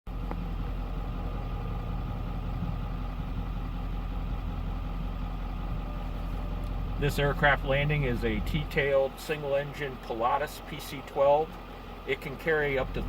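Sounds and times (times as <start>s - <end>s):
low rumble: 0.1s - 9.0s
engine drone: 0.1s - 13.0s.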